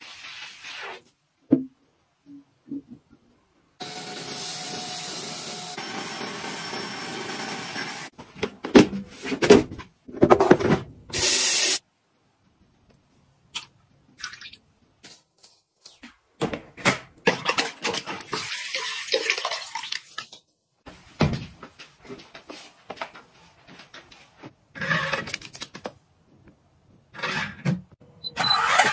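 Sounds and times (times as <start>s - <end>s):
vacuum cleaner running: 3.8s - 8.1s.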